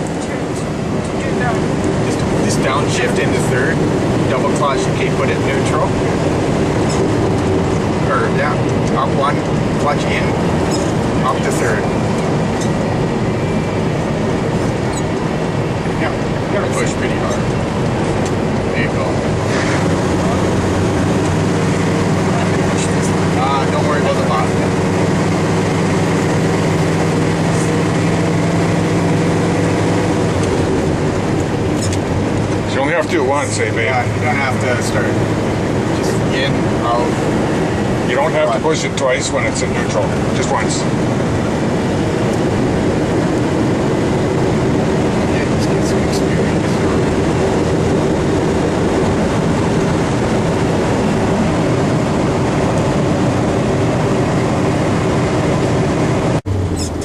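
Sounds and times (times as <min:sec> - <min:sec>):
road noise: 0:00.0 - 0:57.0
truck engine drone from inside cab: 0:00.0 - 0:57.0.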